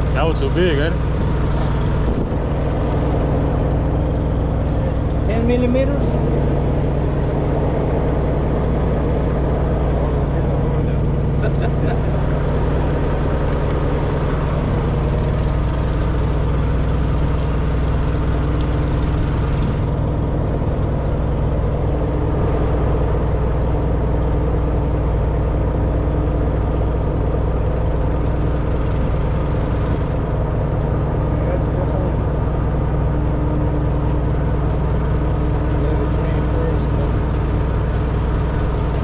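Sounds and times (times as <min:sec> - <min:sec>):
heavy truck engine idling: 0:00.0 - 0:39.0.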